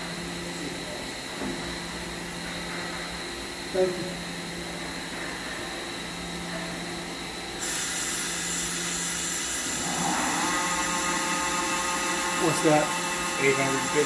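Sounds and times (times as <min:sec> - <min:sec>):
machine hiss: 0:07.6 - 0:14.0
spindle whine: 0:07.8 - 0:14.0.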